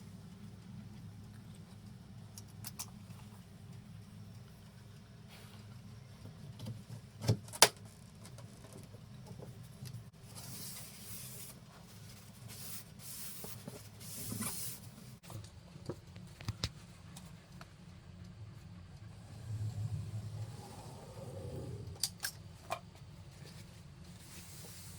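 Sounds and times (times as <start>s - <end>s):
steady low hum: 9.0s - 24.9s.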